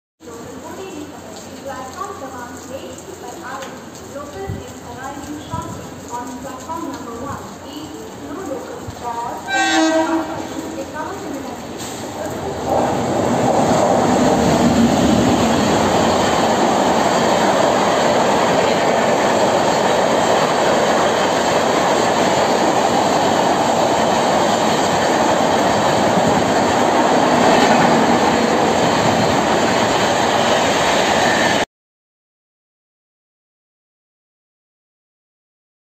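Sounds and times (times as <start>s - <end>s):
train passing at speed: 9.3s - 31.7s.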